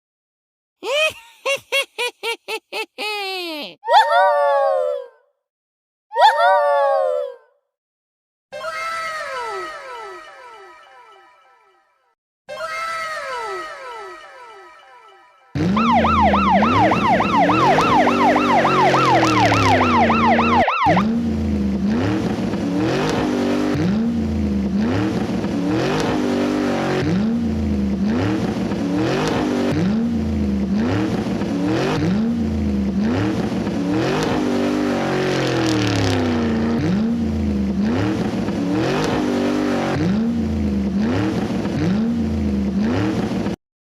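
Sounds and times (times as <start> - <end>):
electronic police siren: 15.6 - 21.2.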